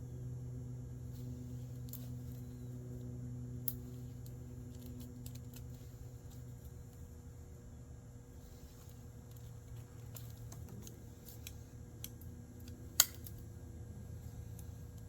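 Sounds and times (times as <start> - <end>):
steady low hum: 0.0 - 15.0
knife stripping wire insulation: 1.1 - 7.1, 8.7 - 13.6.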